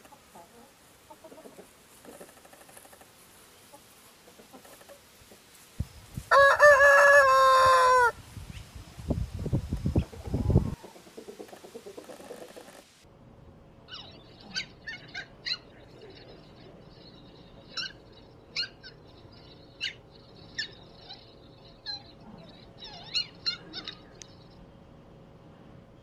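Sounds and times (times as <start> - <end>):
puppy yipping: 13.9 - 15.7, 17.8 - 19.0, 22.8 - 24.2.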